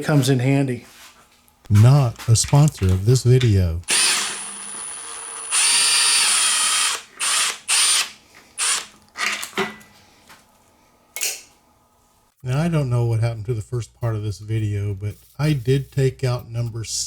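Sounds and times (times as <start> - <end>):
power drill motor whine: 3.9 - 8.9.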